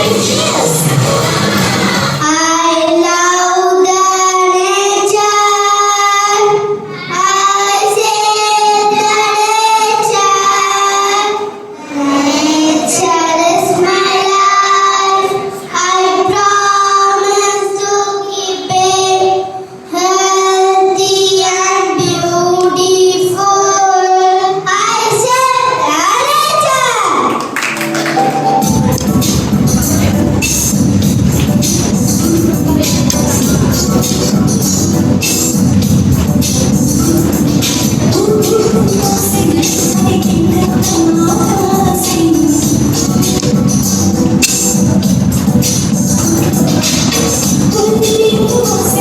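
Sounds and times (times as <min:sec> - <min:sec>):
child singing: 0:02.2 - 0:27.3, 0:37.8 - 0:43.5, 0:47.1 - 0:49.0.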